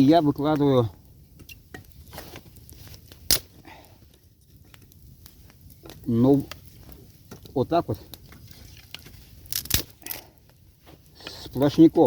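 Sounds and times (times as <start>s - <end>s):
sharp wood crack: 1.4s - 4.0s, 4.6s - 10.4s.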